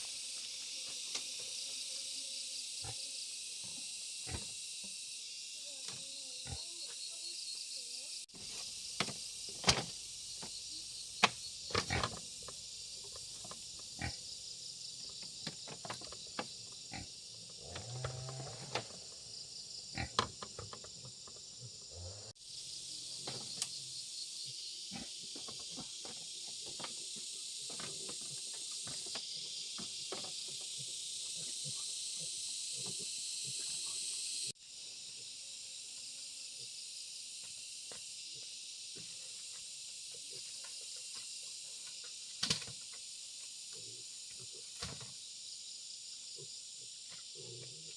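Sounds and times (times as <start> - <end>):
high-pitched insect chorus: 0.0 - 47.9.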